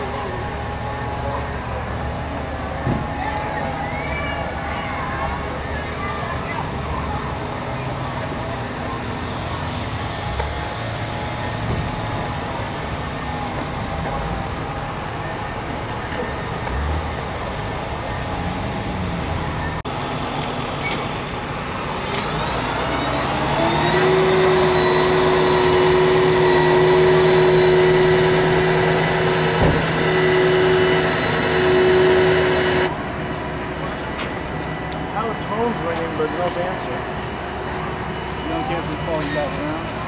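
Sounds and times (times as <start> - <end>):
outdoor background haze: 4.7 - 40.0
engine revving to high speed: 20.8 - 33.0.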